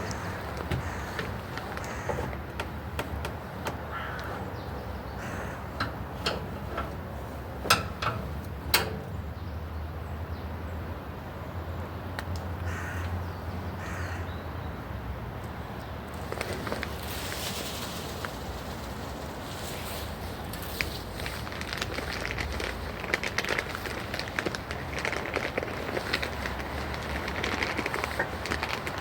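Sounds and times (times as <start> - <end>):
bird cawing: 0.0 - 2.6, 3.7 - 6.2, 12.6 - 13.2, 13.8 - 14.4
sharp clicks or knocks: 5.8 - 9.1.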